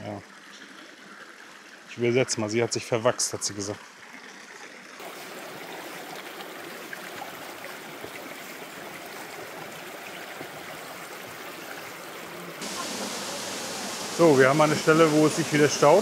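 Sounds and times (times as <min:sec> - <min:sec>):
stream rushing over rocks: 0:05.0 - 0:16.0.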